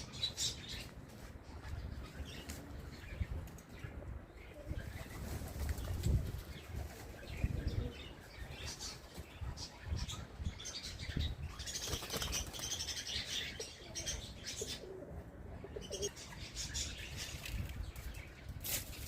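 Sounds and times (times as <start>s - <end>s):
pigeons cooing: 6.7s - 9.0s, 12.8s - 17.0s
pigeons flapping wings: 11.8s - 12.7s.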